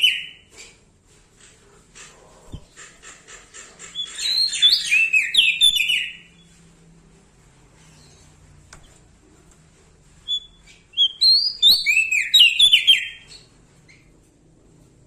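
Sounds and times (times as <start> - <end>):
bird whistling song: 0.0 - 0.4, 3.9 - 6.5, 10.2 - 14.1.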